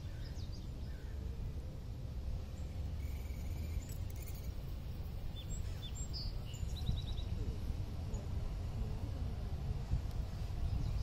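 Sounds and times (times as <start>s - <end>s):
low outdoor rumble: 0.0s - 11.0s
small bird chirping: 2.5s - 7.4s.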